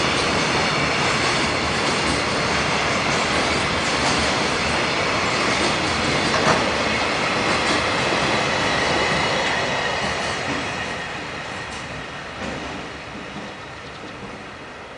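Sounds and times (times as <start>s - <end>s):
clacks over rail joints: 5.4s - 9.2s.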